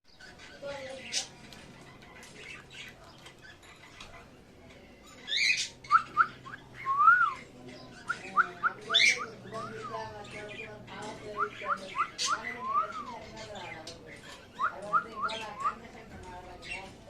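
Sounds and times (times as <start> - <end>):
parrot squawks: 11.3 - 13.1.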